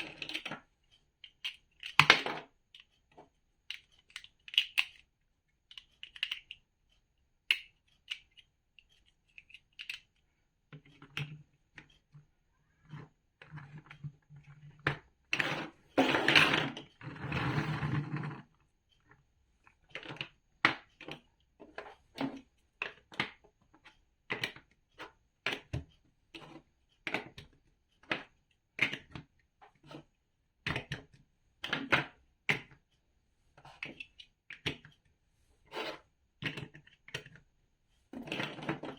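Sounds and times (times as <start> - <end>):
plastic bricks clicking: 3.7 - 5.0, 5.7 - 6.6, 9.4 - 10.1.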